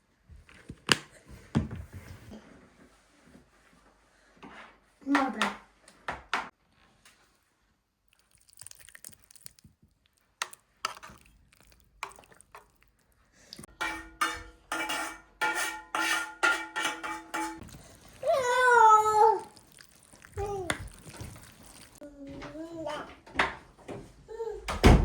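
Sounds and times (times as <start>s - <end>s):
dishes and metal pot clinking: 13.6s - 17.8s.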